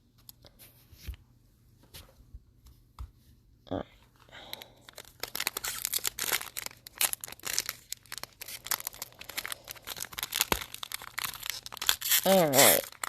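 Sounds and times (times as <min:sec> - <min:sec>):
wrapper tearing and crinkling: 0:04.8 - 0:13.0.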